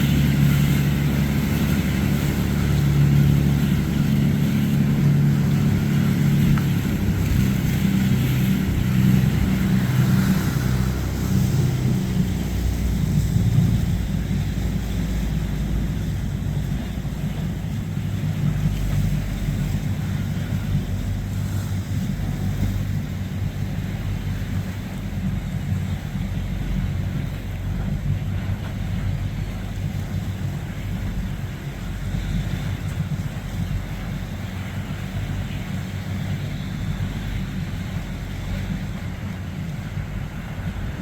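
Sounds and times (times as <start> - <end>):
boat engine droning: 0.0 - 41.0
wind on microphone: 0.0 - 41.0.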